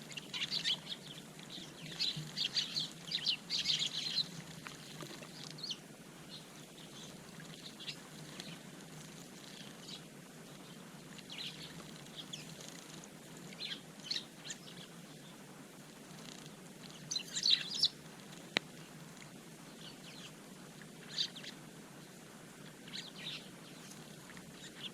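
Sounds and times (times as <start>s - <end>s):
sparrows chirping: 0.0s - 15.4s, 16.0s - 19.0s, 19.7s - 20.4s, 21.0s - 21.6s, 22.6s - 24.9s.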